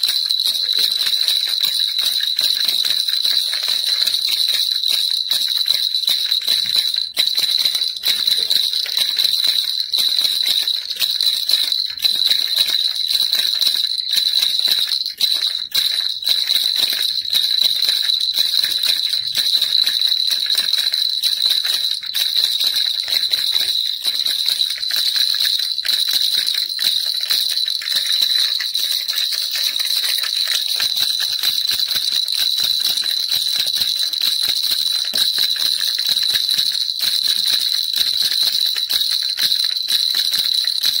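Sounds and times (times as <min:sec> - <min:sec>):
baby rattle shaken: 0:00.0 - 0:41.0.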